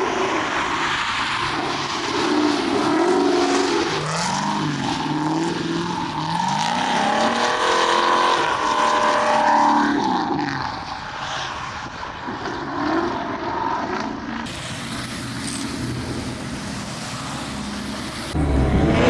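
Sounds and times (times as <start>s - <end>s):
car engine revving hard: 1.5s - 10.6s, 14.5s - 19.0s.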